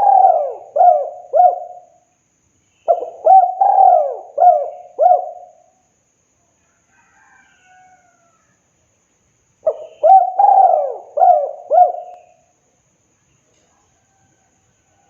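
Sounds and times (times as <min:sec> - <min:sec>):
dove cooing: 0:00.0 - 0:02.0, 0:02.9 - 0:05.7, 0:09.6 - 0:12.4
faint high bird chirp: 0:09.6 - 0:12.5.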